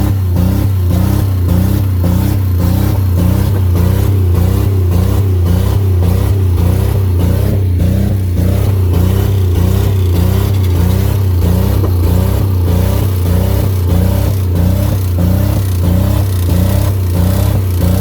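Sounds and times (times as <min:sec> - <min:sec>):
car engine at high revs: 0:00.0 - 0:18.0.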